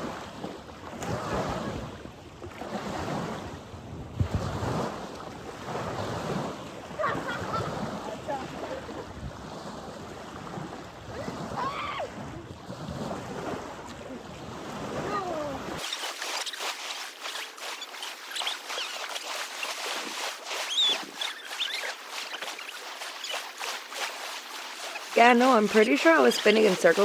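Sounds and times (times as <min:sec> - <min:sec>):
wind on microphone: 0:00.0 - 0:15.8
water splashing around kayak: 0:00.0 - 0:27.0.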